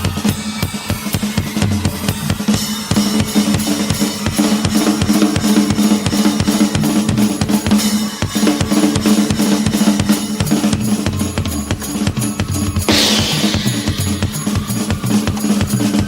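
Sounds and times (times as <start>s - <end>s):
drum kit playing: 0.0s - 16.0s.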